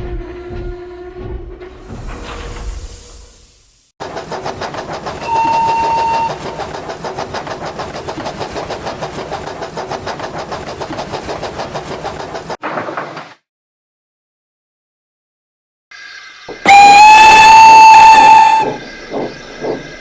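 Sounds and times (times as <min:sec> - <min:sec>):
steam locomotive exhaust beats: 0:00.0 - 0:12.6, 0:16.5 - 0:20.0
steam whistle blast: 0:05.2 - 0:06.6, 0:16.6 - 0:18.8.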